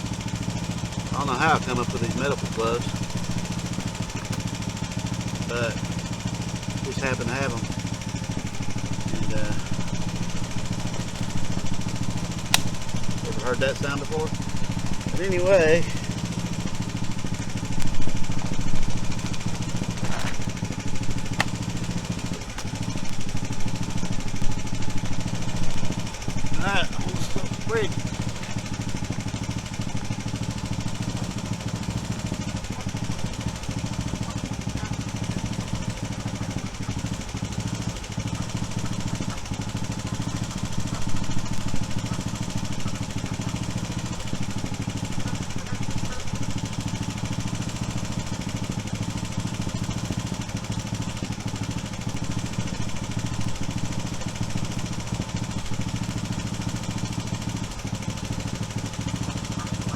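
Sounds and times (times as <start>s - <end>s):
motor humming: 0.0s - 59.9s.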